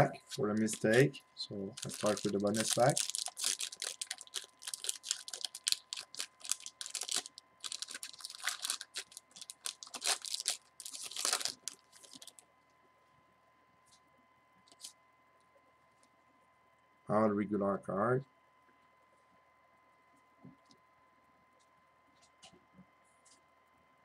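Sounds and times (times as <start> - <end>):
faint high hum: 0.0 - 24.0
wrapper tearing and crinkling: 0.3 - 1.0, 1.7 - 12.4.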